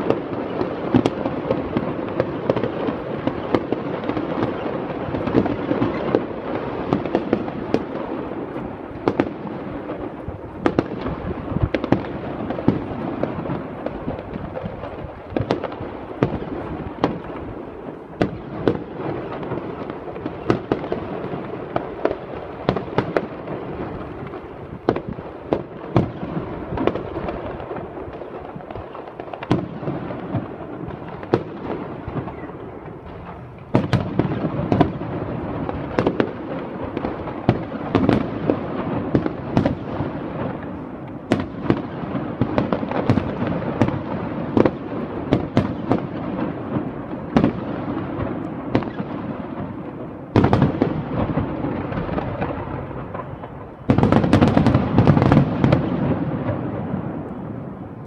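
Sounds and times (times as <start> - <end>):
fireworks crackling and banging: 0.0 - 58.0.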